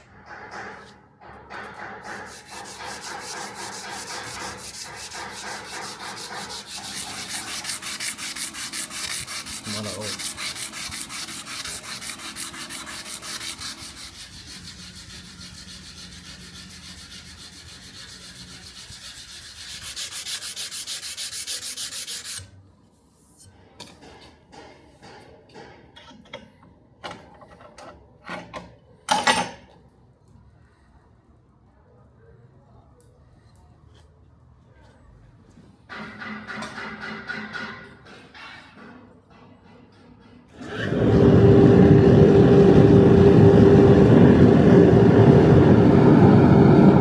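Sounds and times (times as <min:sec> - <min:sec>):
abrasive paper rubbing steel blade: 0:02.0 - 0:22.5.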